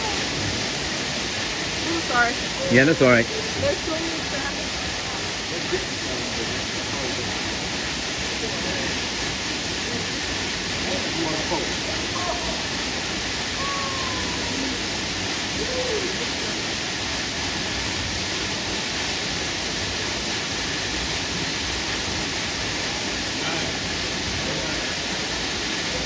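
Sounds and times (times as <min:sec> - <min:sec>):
waterfall rushing into pool: 0:00.0 - 0:26.0.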